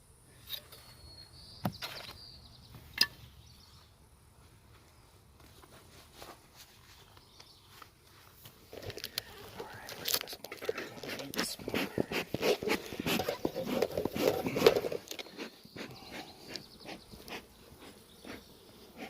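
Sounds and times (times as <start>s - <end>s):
wooden beehive parts knocking: 10.5s - 15.3s.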